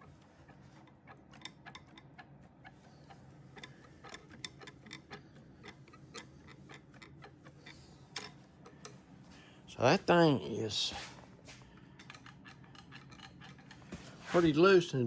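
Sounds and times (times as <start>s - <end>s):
wooden chair joints knocking: 3.0s - 8.4s.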